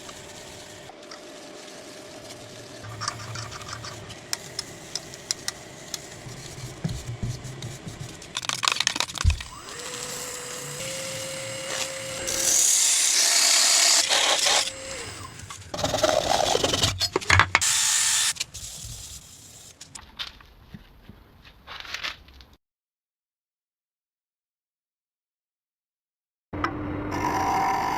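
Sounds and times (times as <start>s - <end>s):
power tool motor running: 0.0s - 0.9s, 9.2s - 16.8s, 17.6s - 18.4s
tool rasping on wood: 9.5s - 16.9s.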